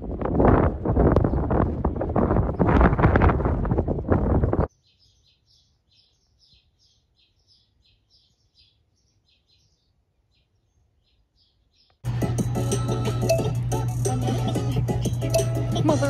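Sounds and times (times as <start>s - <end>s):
wind on microphone: 0.0s - 4.7s
small bird chirping: 4.7s - 12.1s.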